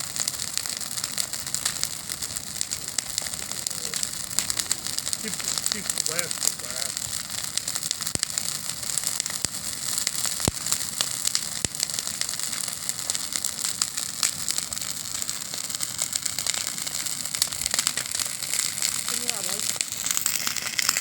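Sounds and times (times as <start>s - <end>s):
campfire wood crackling: 0.0s - 21.0s
sharp wood snaps: 2.6s - 6.6s.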